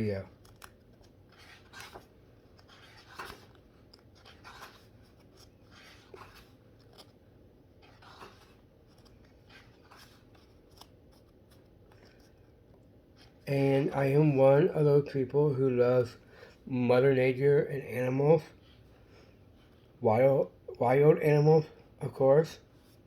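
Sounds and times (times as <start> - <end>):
paper rustling: 0.0 - 7.2, 7.8 - 13.4.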